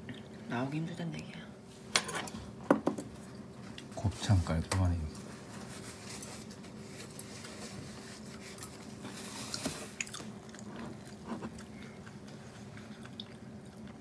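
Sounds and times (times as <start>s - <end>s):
steady low hum: 0.0s - 14.0s
faint chewing: 8.3s - 14.0s.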